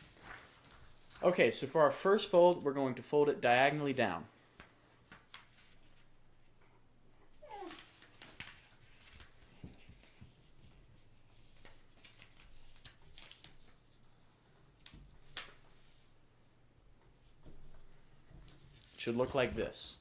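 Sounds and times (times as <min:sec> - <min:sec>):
paper being folded and creased: 0:00.0 - 0:01.4, 0:04.4 - 0:06.1, 0:07.6 - 0:16.2, 0:18.4 - 0:20.0.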